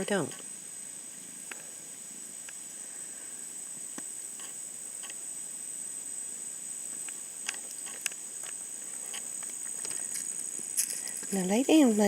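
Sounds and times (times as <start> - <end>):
faint hiss: 0.0 - 12.0
high-pitched insect drone: 0.0 - 12.0
soft ticks and rustles: 6.9 - 12.0.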